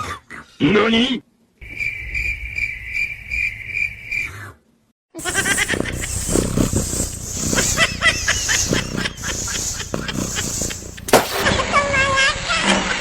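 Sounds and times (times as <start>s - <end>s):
steady hiss: 5.2s - 11.4s.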